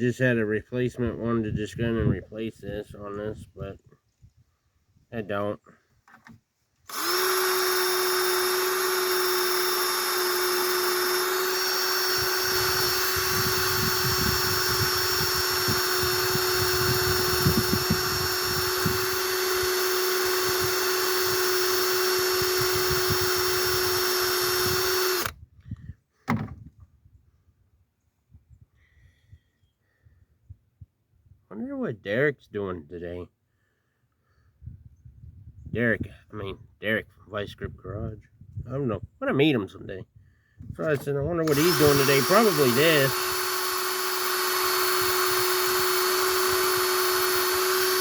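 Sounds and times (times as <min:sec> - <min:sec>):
power drill whine: 0:06.9 - 0:25.4, 0:40.9 - 0:48.0.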